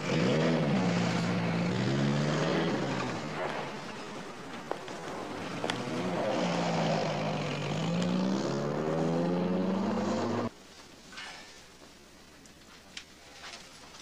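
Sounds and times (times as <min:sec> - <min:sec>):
car engine droning: 0:00.0 - 0:10.5.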